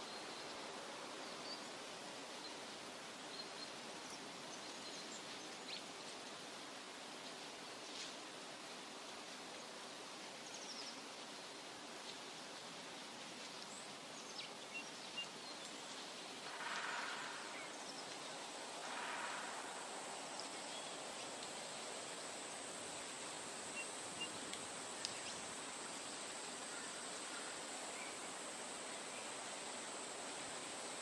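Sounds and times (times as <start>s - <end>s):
faint chirps and clicks: 13.4s - 22.3s, 23.7s - 27.4s.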